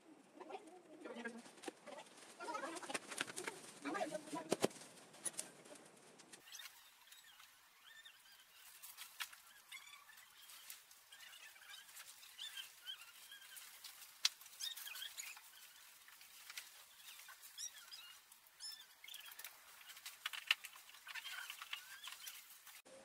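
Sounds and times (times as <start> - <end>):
birds chirping and twittering: 5.2 - 22.8.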